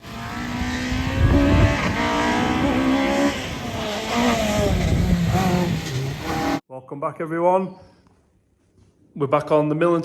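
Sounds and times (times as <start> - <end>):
race car engine revving: 0.0 - 6.6.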